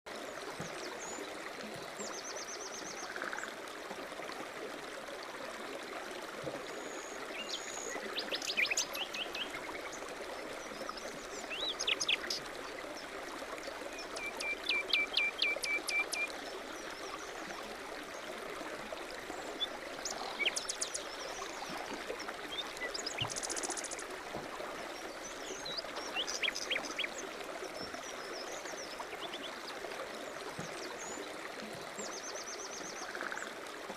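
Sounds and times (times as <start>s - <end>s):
stream running: 0.1s - 33.9s
songbirds singing: 6.8s - 17.4s, 19.3s - 21.8s, 24.9s - 27.2s.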